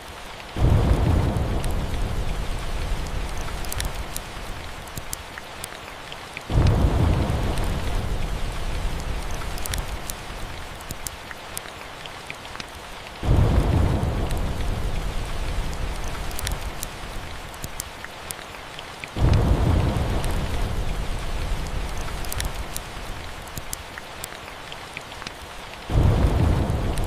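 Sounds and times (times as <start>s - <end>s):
steady rain: 0.0s - 27.0s
thunder rumbling: 0.6s - 4.7s, 6.5s - 10.8s, 13.2s - 17.5s, 19.2s - 23.2s, 25.9s - 27.0s
sharp crackles: 0.6s - 5.8s, 6.5s - 11.8s, 12.5s - 24.4s, 25.2s - 27.0s.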